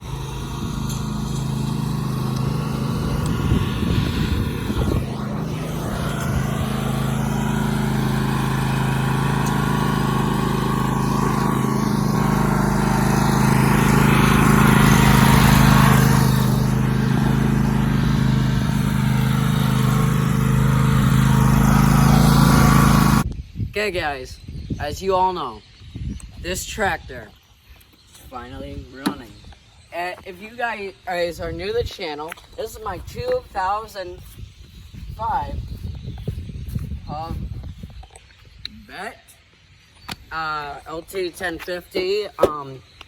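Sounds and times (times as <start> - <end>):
lawn tractor engine running: 0.0 - 23.2.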